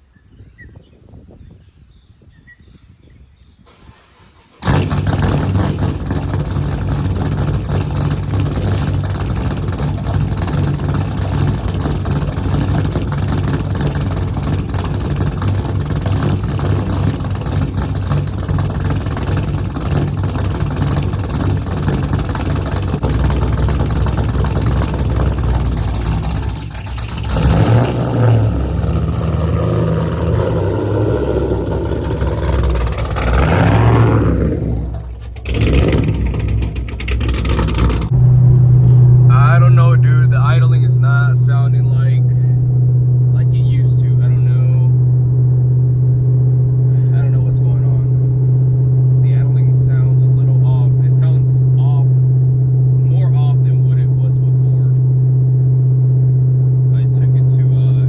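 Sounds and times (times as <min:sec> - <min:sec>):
car engine starting and idling: 0:03.6 - 0:58.0.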